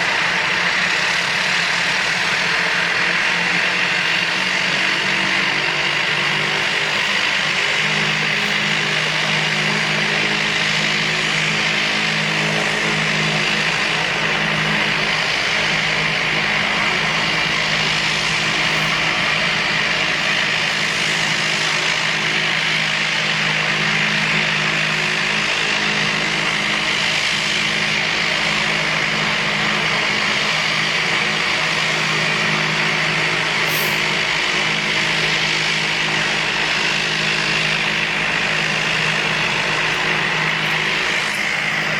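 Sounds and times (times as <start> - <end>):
engine running steadily: 0.0 - 41.9.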